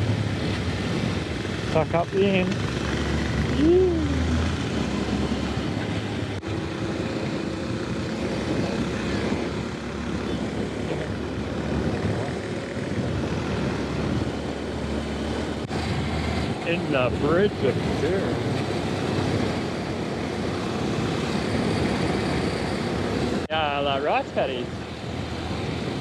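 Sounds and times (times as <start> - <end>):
motorcycle engine running: 0.0 - 15.9
wind rush on microphone: 0.0 - 26.0.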